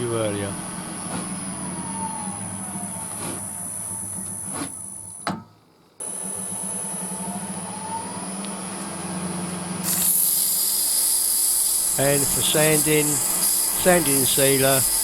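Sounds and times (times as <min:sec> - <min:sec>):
loud hiss: 0:09.8 - 0:15.0
turning tool cutting wood: 0:09.8 - 0:15.0
wood lathe running: 0:09.8 - 0:15.0.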